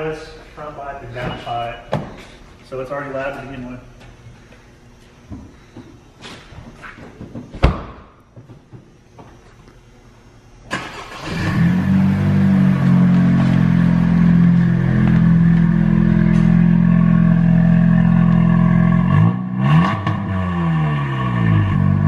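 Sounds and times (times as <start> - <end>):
car engine starting and idling: 10.7 - 22.0
engine revving in blips: 10.8 - 22.0.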